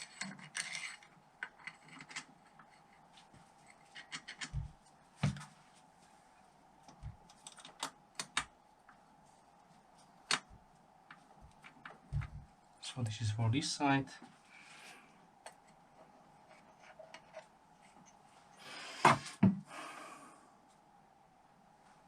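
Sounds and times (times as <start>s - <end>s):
metal parts clicking and tapping: 0.0s - 3.0s, 3.6s - 4.7s, 7.3s - 8.5s
faint steady hum: 0.0s - 22.0s.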